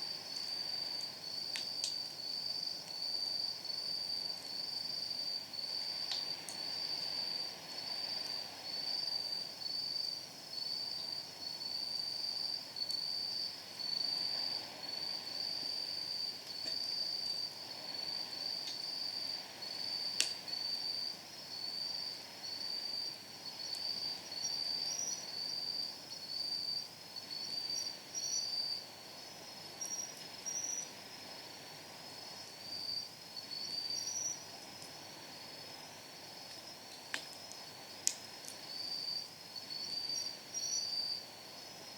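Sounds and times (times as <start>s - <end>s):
insects chirping: 0.0s - 41.9s
firewood crackling: 36.4s - 38.7s.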